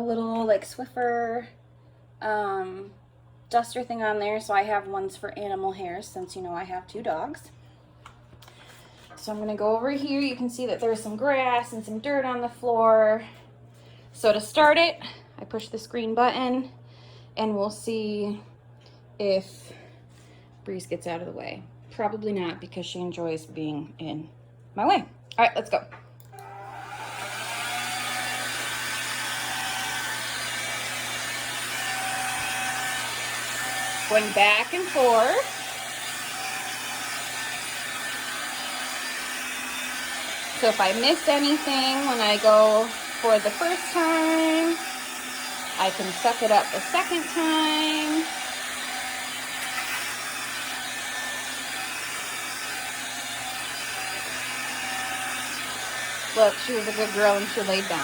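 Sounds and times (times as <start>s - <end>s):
stick vacuum running: 26.2s - 58.0s.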